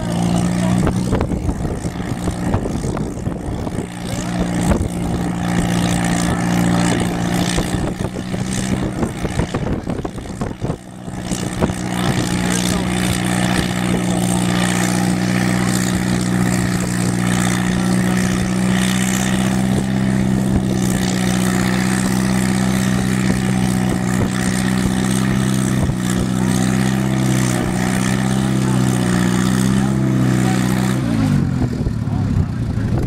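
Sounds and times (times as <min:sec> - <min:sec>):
engine running at steady revs: 0:00.0 - 0:33.0.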